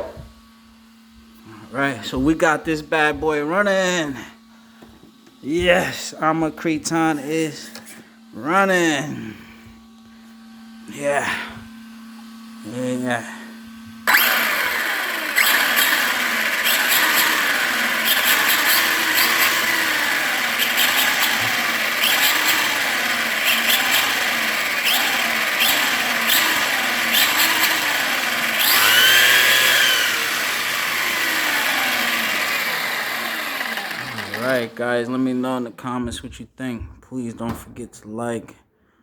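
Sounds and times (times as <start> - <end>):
electric motor whining: 8.4 - 35.6.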